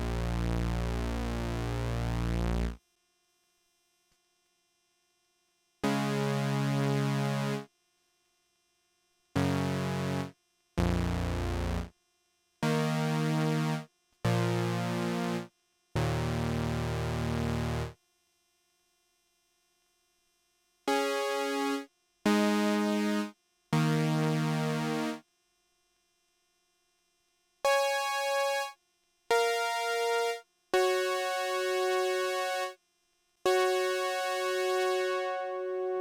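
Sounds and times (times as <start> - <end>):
synthesizer playing held chords: 33.5 - 36.0.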